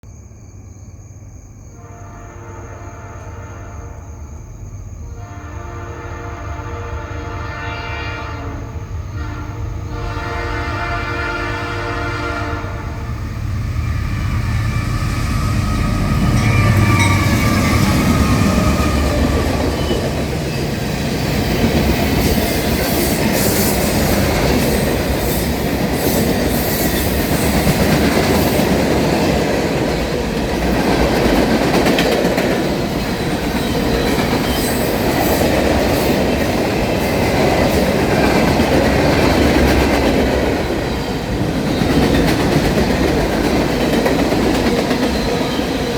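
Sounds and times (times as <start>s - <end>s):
diesel locomotives rumbling: 4.6s - 45.9s
train wheels on rails: 9.7s - 45.9s.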